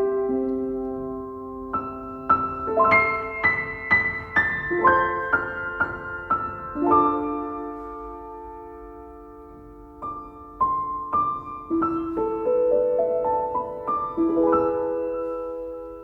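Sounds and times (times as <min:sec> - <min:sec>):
slow solo piano music: 0:00.0 - 0:16.0.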